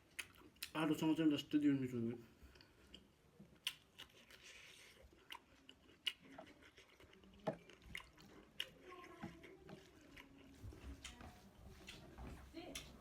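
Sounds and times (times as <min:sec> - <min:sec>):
soft wet chewing: 0:00.0 - 0:13.0
mouth clicks and smacks: 0:00.1 - 0:00.8, 0:02.9 - 0:10.3.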